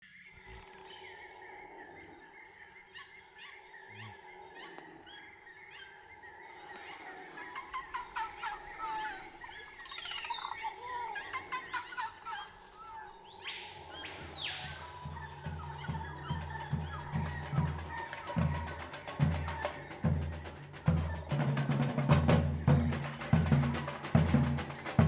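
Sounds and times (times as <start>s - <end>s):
birds chirping and trilling: 0.0s - 25.0s
insect drone: 0.0s - 25.0s.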